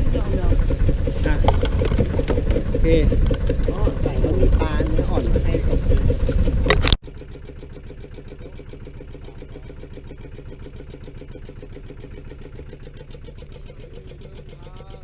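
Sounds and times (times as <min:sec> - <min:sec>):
loud wind and water noise: 0:00.0 - 0:07.0
small engine idling: 0:00.0 - 0:15.0.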